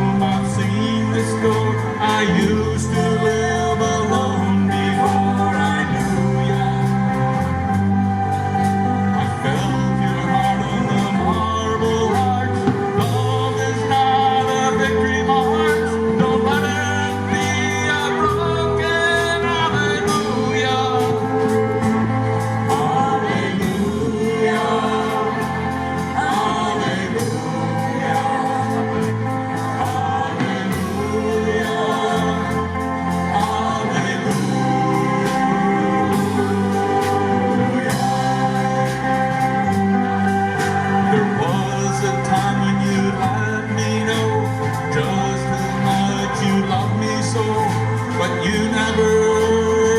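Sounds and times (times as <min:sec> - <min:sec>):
live band playing: 0:00.0 - 0:49.9
person singing: 0:00.0 - 0:49.9
steady drum beat: 0:00.0 - 0:49.9.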